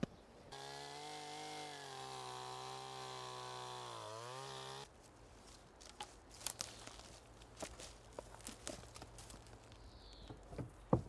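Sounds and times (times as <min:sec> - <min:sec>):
chainsaw cutting wood: 0:00.5 - 0:04.9.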